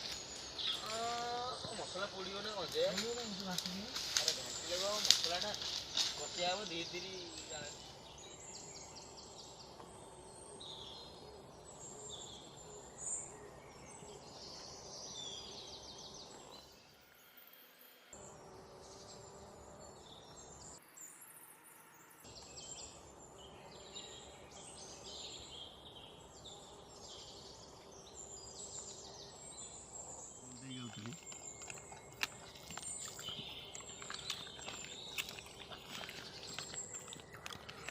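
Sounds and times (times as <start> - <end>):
insects trilling: 0.0 - 13.4, 25.3 - 37.9
birds chirping: 0.0 - 16.7, 22.3 - 37.9.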